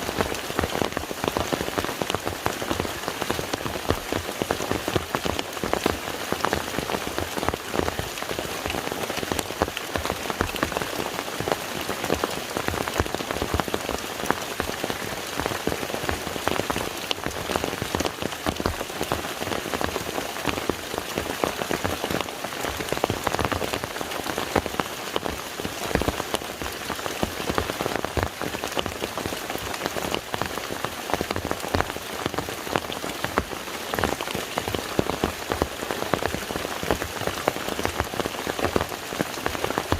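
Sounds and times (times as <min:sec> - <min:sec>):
rain falling on lake: 0:00.0 - 0:39.9.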